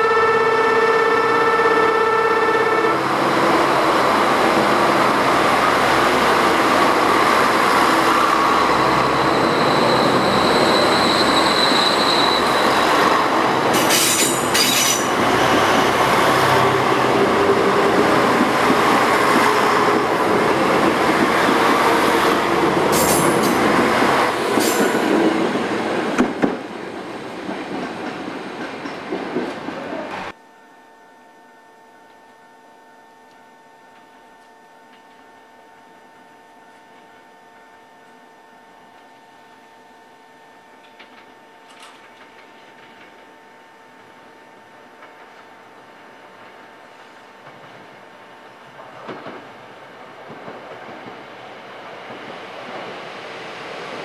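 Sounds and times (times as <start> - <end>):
diesel train rumbling past: 0.0 - 30.3.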